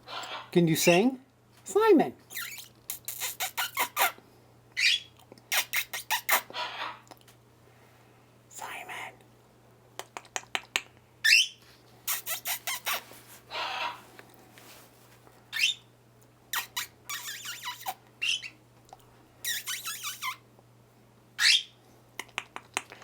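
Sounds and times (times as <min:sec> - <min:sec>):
parrot raspy screeches: 0:00.0 - 0:00.5, 0:02.3 - 0:04.2, 0:04.8 - 0:07.0, 0:11.3 - 0:11.5, 0:12.1 - 0:14.1, 0:15.5 - 0:15.8, 0:16.5 - 0:18.6, 0:19.4 - 0:20.4, 0:21.4 - 0:21.8
parrots squawking: 0:00.0 - 0:00.5, 0:02.3 - 0:04.2, 0:04.8 - 0:07.0, 0:11.2 - 0:11.5, 0:12.1 - 0:14.1, 0:15.5 - 0:15.8, 0:16.5 - 0:18.6, 0:19.4 - 0:20.4, 0:21.4 - 0:21.8
parrot whistled calls: 0:04.8 - 0:07.0, 0:11.2 - 0:14.0, 0:15.5 - 0:15.8, 0:16.5 - 0:18.6, 0:19.4 - 0:20.4, 0:21.4 - 0:21.8.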